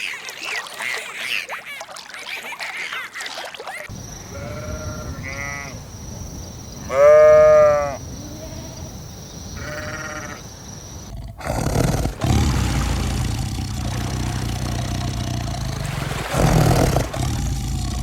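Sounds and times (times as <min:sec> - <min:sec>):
animal bleating: 0:04.3 - 0:05.7, 0:06.9 - 0:08.7, 0:09.6 - 0:10.4.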